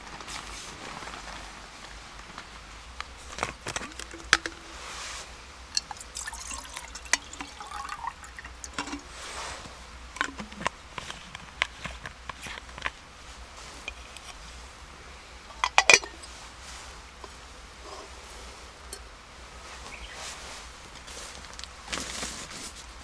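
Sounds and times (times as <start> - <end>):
camp cookware clicking and knocking: 3.0 - 4.9, 10.1 - 10.8, 15.5 - 16.3
liquid pouring and dripping: 3.6 - 5.0, 5.7 - 9.2.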